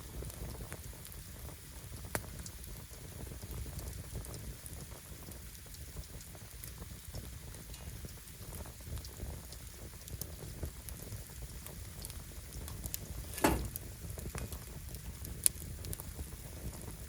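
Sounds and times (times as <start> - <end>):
firewood burning with crackles: 0.0 - 17.0
loud pop: 13.2 - 13.9
sharp snap: 13.3 - 13.8.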